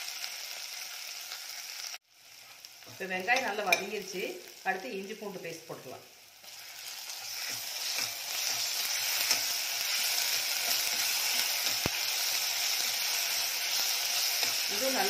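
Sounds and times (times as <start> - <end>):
onions sizzling in hot oil: 0.0 - 15.0
metal spoon scraping pan: 6.6 - 12.0.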